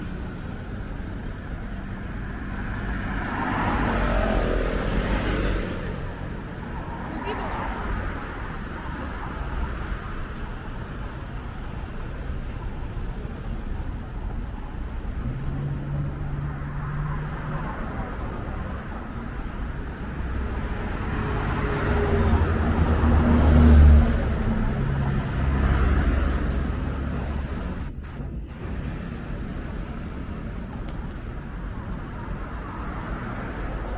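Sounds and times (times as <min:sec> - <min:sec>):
rumble of passing cars: 0:00.0 - 0:33.9
heavy vehicle passing close: 0:15.0 - 0:30.6.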